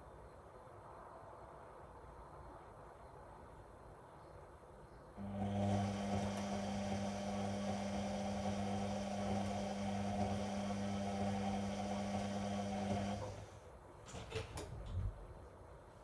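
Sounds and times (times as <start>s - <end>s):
washing machine humming: 5.2s - 13.6s.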